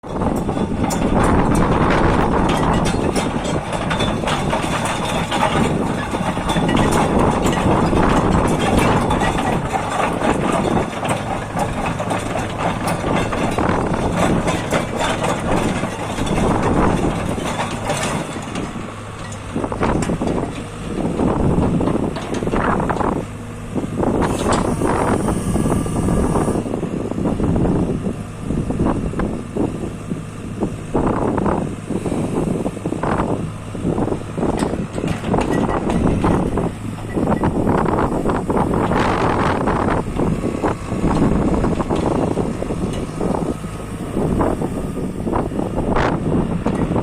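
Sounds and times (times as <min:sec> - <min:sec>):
excavator diesel engine running: 0:00.0 - 0:47.0.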